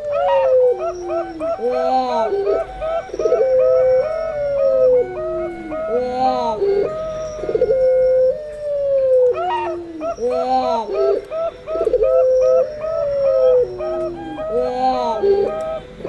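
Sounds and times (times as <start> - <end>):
doves cooing: 0.0 - 16.0.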